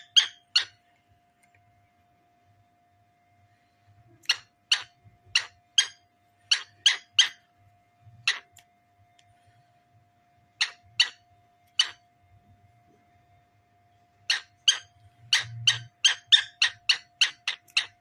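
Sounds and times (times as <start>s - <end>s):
cockatiel chirping: 0.0s - 0.8s, 4.2s - 7.5s, 8.2s - 8.6s, 10.6s - 12.1s, 14.2s - 18.0s.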